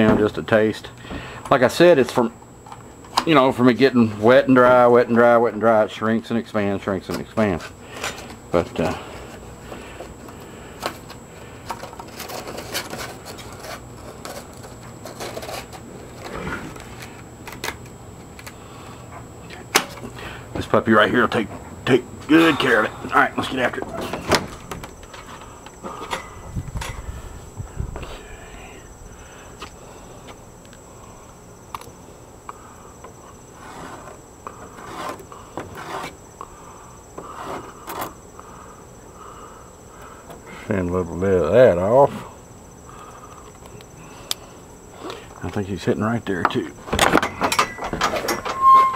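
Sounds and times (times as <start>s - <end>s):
high insect trill: 0.0s - 48.9s
wood scraping and rubbing: 7.5s - 17.2s, 33.5s - 36.2s, 37.2s - 38.2s, 48.0s - 48.9s.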